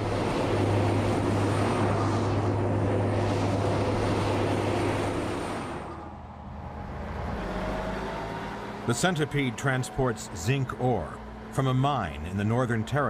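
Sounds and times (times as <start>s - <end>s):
road and tyre noise: 0.0s - 13.0s
truck engine drone: 0.0s - 13.0s.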